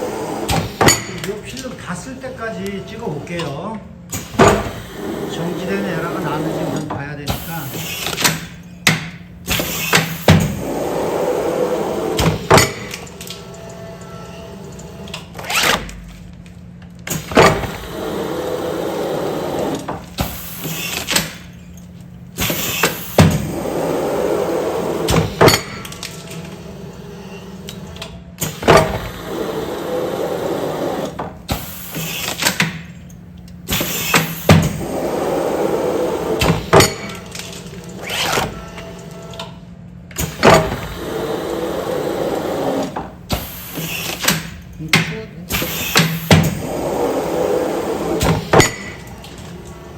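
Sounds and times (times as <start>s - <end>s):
machine mechanism clunking: 0.0s - 49.9s
steady hum: 0.0s - 49.9s
motor whirring: 45.6s - 49.9s.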